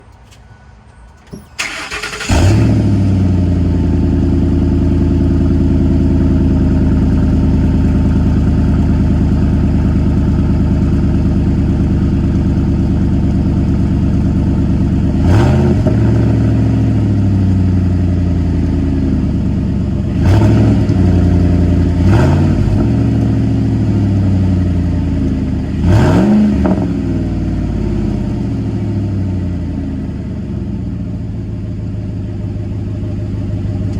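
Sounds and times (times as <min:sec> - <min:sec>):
truck engine cranking: 0:00.0 - 0:03.7
engine throttle blips: 0:01.2 - 0:29.8
loud engine idling: 0:01.6 - 0:26.0, 0:26.9 - 0:33.9.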